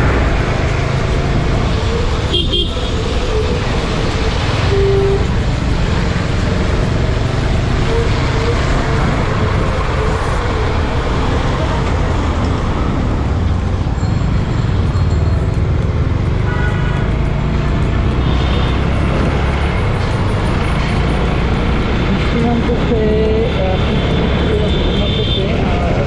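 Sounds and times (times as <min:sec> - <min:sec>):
motorcycle engine: 0:00.0 - 0:25.7
wind and road noise: 0:00.0 - 0:26.0
horn toot: 0:04.6 - 0:05.3.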